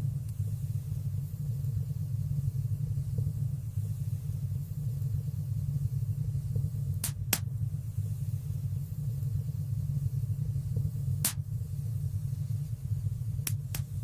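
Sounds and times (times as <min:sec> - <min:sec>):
fire crackling pops: 0:06.4 - 0:07.8, 0:10.4 - 0:11.8, 0:12.6 - 0:14.0.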